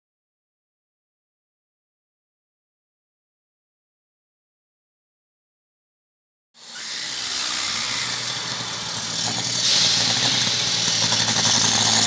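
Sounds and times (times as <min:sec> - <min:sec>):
tractor engine running: 0:07.1 - 0:12.0.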